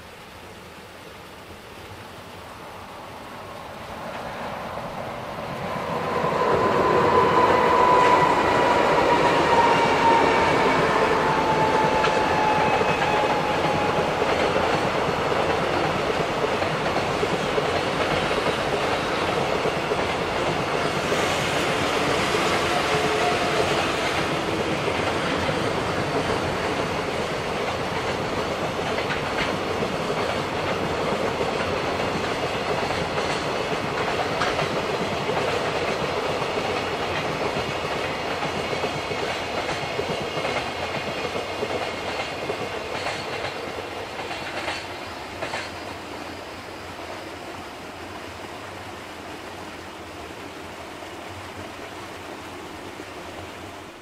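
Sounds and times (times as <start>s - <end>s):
train wheels clacking over rail joints: 6.0s - 46.0s.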